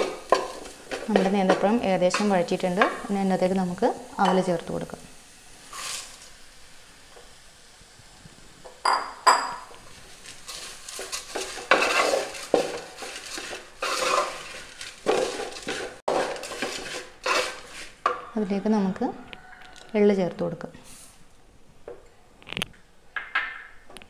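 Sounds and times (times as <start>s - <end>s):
spoon scraping in pan: 0.0s - 3.1s, 5.6s - 6.4s, 9.4s - 20.0s.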